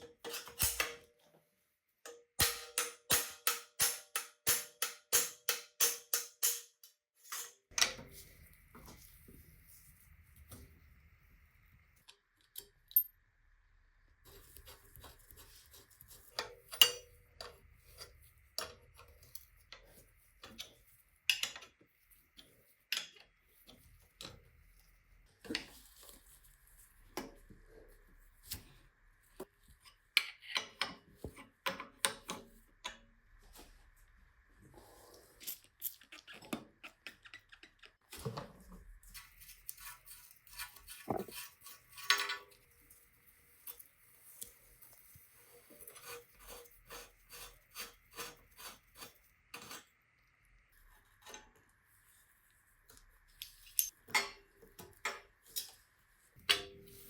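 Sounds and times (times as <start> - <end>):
hand tools clicking and clinking: 0.0 - 1.0.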